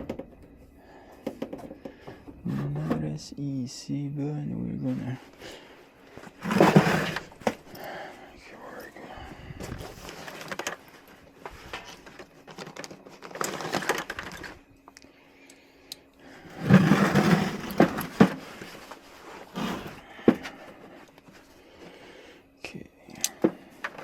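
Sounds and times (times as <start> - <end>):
metal parts rattling: 6.4 - 7.8, 11.8 - 14.6, 16.5 - 18.6.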